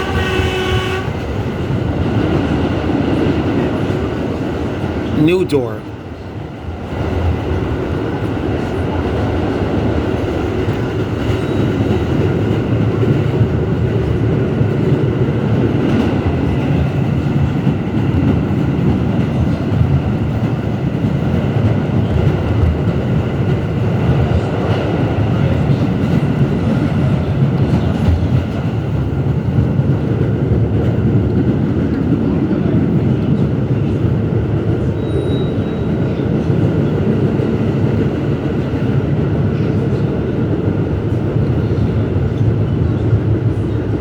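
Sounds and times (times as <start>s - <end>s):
subway wheels rumbling on rails: 0.0s - 5.2s, 5.9s - 44.0s.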